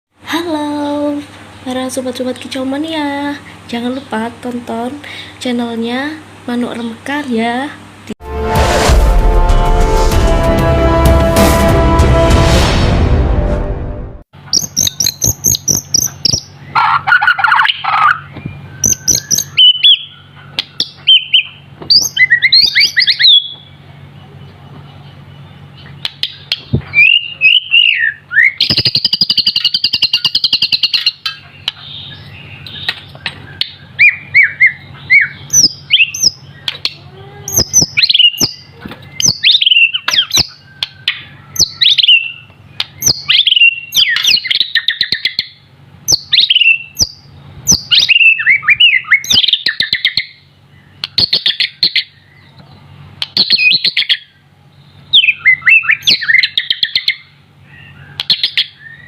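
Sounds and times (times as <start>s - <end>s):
sharp bird clicks: 14.5s - 16.5s, 17.5s - 19.7s, 28.6s - 31.9s, 51.0s - 52.0s, 53.2s - 54.1s, 58.1s - 58.7s
bird whistling song: 14.5s - 23.8s, 25.4s - 52.5s, 53.2s - 54.3s, 55.1s - 59.0s.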